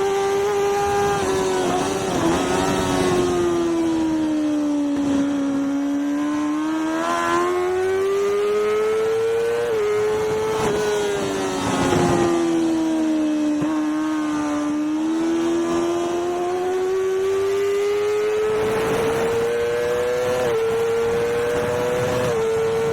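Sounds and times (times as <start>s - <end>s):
wind rush: 0.0s - 6.5s, 7.3s - 16.8s, 17.6s - 22.9s
motorcycle engine revving: 0.0s - 22.9s.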